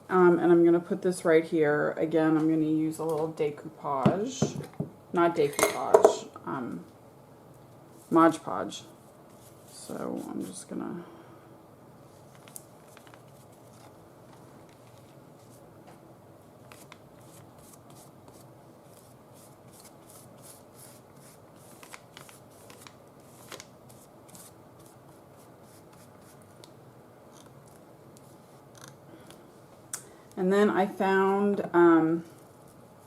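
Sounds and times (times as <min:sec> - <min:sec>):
paper rustling: 0:12.2 - 0:15.6, 0:16.6 - 0:26.6.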